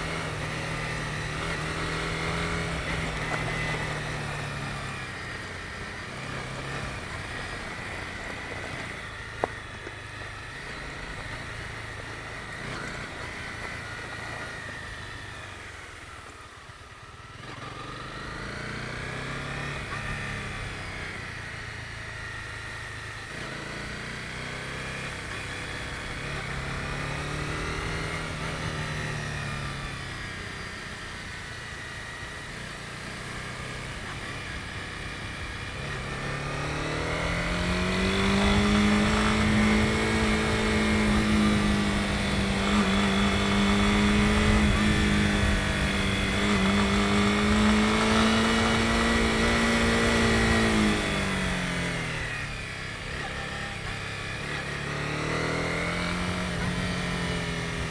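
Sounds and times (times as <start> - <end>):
motorcycle engine revving: 0.0 - 57.9
tyre and wind noise: 34.3 - 52.7.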